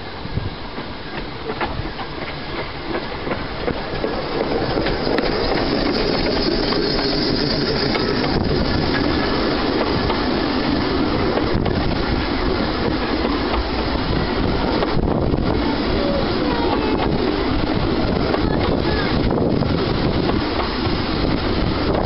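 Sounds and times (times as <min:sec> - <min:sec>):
train wheels rumbling and rattling: 0:00.0 - 0:22.0
faint wheel squeal: 0:04.9 - 0:09.0.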